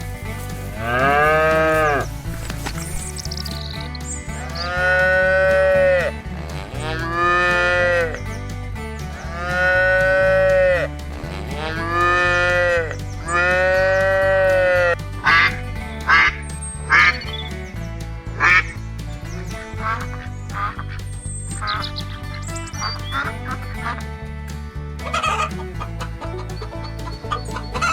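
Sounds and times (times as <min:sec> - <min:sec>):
background music with steady beat: 0:00.0 - 0:27.9
cow mooing: 0:00.8 - 0:02.1, 0:04.7 - 0:08.0
duck quacking: 0:25.0 - 0:27.9.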